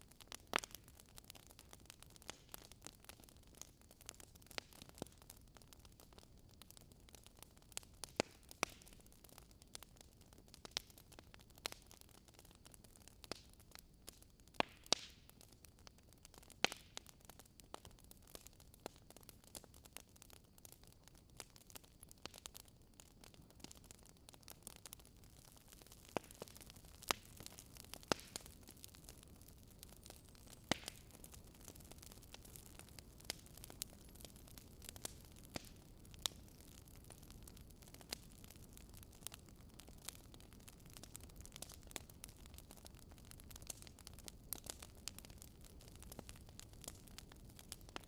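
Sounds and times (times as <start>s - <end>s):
campfire crackling: 0.0s - 48.0s.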